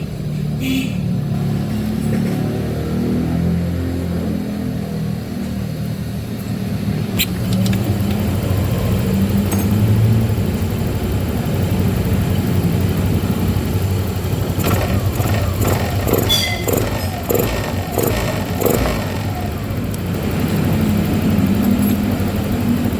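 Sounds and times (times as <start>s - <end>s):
motorcycle engine idling: 7.2s - 22.9s.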